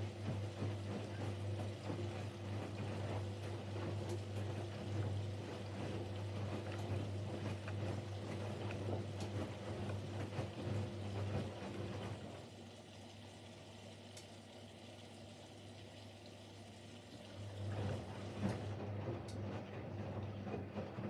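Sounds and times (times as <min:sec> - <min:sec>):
washing machine motor humming: 0:00.0 - 0:21.0
water sloshing and rustling: 0:01.6 - 0:12.5.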